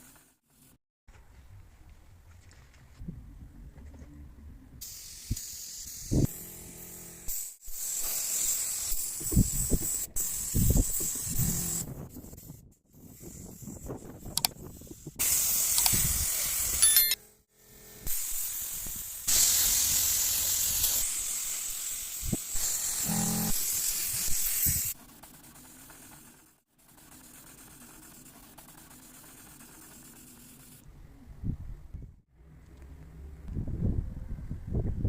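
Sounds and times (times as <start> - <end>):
compressed air hissing: 4.8 - 6.4, 7.3 - 11.9, 14.8 - 16.8, 18.1 - 25.0.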